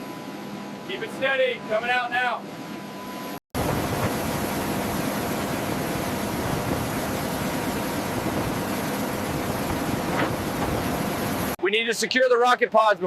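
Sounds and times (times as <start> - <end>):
turbine aircraft roar: 3.6 - 11.6.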